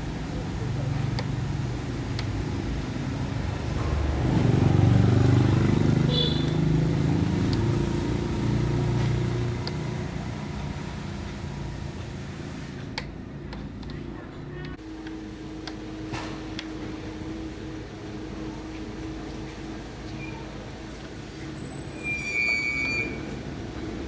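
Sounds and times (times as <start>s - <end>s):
vehicle engine passing by: 1.6s - 12.4s.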